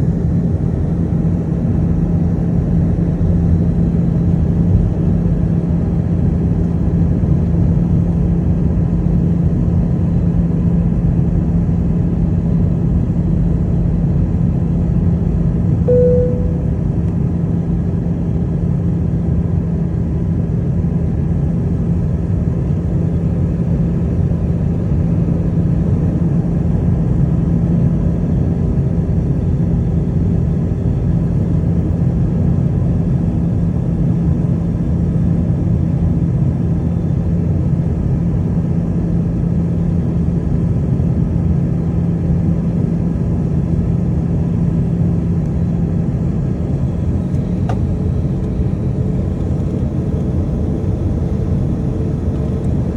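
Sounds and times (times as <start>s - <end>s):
airplane cabin engine drone: 0.0s - 52.9s
steady low hum: 15.9s - 17.4s, 43.5s - 52.9s.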